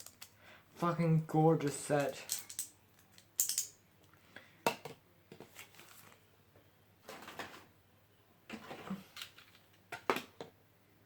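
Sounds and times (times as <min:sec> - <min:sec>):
packaging rustling and scraping: 0:05.4 - 0:06.2, 0:08.5 - 0:09.8.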